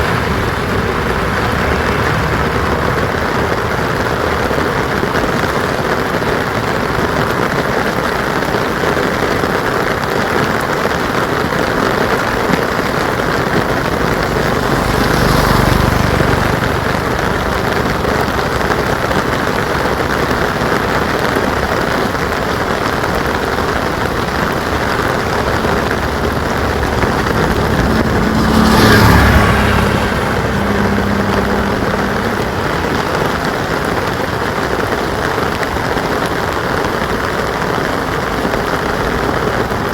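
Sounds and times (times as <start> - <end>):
vehicle passing: 0.0 - 6.4, 11.4 - 35.8
rain pattering: 0.0 - 39.9.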